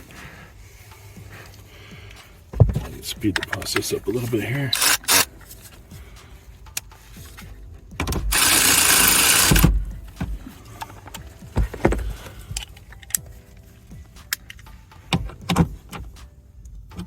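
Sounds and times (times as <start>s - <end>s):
loud rasping burst: 4.7s - 5.3s, 8.3s - 9.7s.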